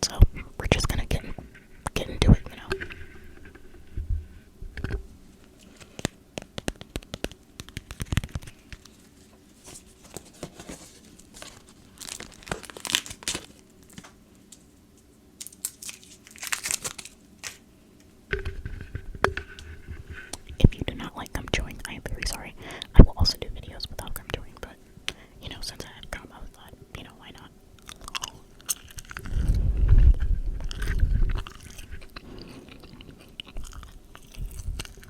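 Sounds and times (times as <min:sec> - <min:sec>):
packaging crinkling: 0:05.6 - 0:14.6, 0:15.4 - 0:17.6.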